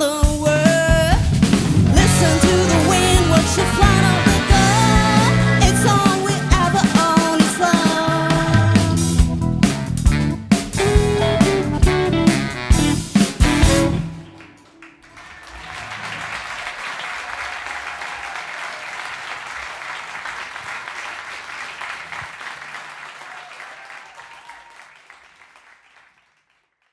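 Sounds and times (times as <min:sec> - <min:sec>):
live jazz-rock band playing: 0:00.0 - 0:14.5
audience applause: 0:01.9 - 0:09.1, 0:14.0 - 0:26.8.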